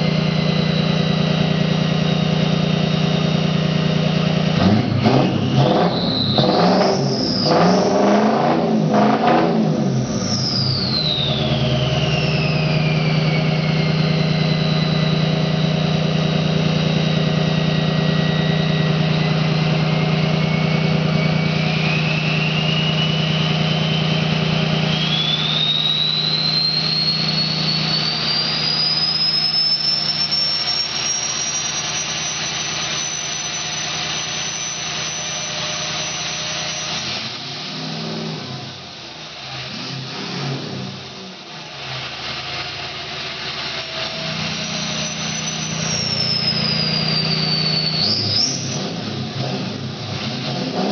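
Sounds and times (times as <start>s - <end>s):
diesel engine running: 0.0s - 6.4s, 8.6s - 50.9s
turbo whistle: 5.1s - 8.5s, 9.9s - 37.3s, 43.7s - 49.2s.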